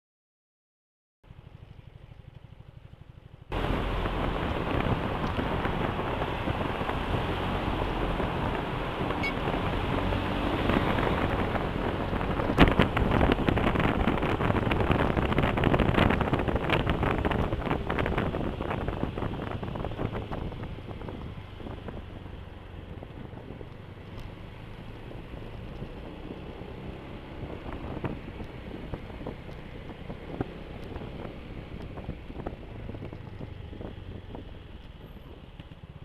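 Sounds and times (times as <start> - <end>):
scooter engine running: 1.3 - 34.6
wind rushing over microphone: 3.5 - 35.6.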